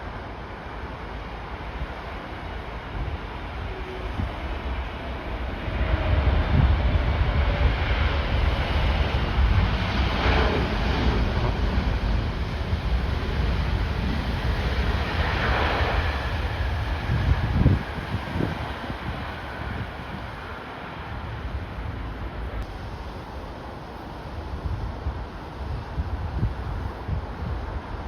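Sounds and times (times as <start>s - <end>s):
jet engines roaring: 0.0s - 25.5s
wind buffeting microphone: 0.2s - 28.0s.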